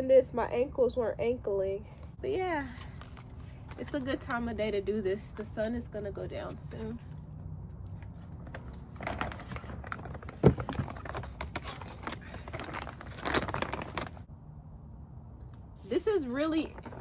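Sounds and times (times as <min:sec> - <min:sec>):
plastic bag crinkling: 0:08.3 - 0:14.3
seed shifting in bag: 0:08.9 - 0:14.3.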